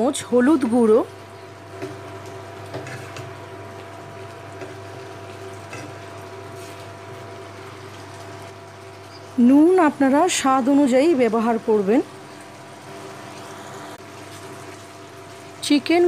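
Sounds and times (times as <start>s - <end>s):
food frying and bubbling: 0.0s - 16.0s
spatula scraping a pan: 2.6s - 3.4s, 4.6s - 6.9s.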